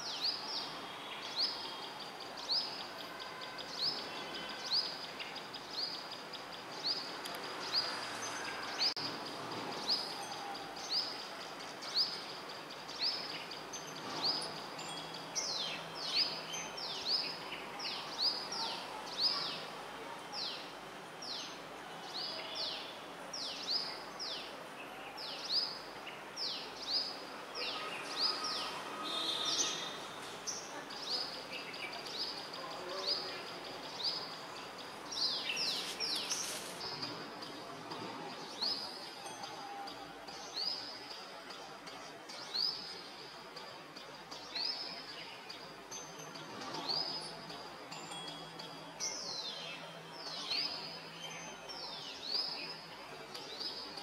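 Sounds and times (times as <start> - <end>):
small birds chirping: 0.0 - 37.7.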